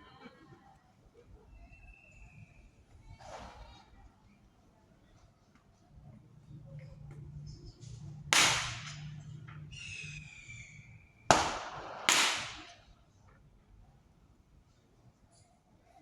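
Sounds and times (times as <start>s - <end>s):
firework bangs with hiss: 8.4s - 9.2s, 11.3s - 12.8s
high falling whistle: 9.7s - 11.2s.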